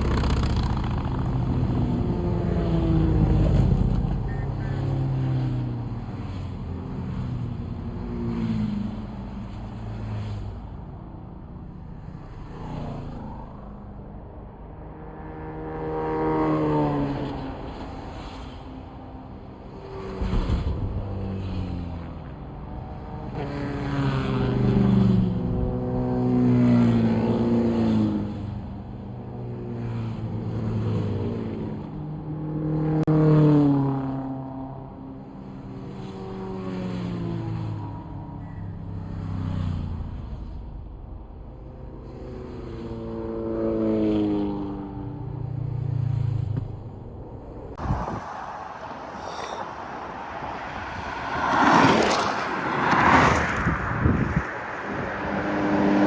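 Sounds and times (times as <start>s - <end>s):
motorcycle engine running: 0.0s - 2.5s
sport bike engines revving by: 0.0s - 8.3s, 47.7s - 56.0s
steady rushing noise: 46.3s - 56.0s.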